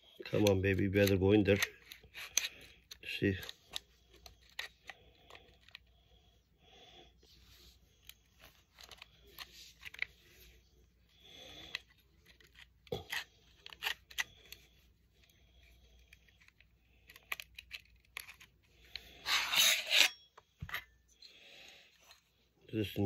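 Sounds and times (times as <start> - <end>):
loud metal scrape: 19.2 - 20.2.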